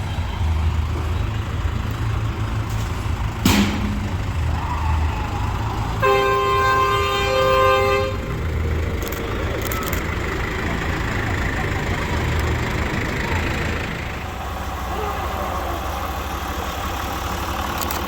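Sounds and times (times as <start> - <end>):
low engine rumble: 0.0 - 18.0
sharp crack: 3.4 - 4.5
horn sounding: 6.0 - 8.4.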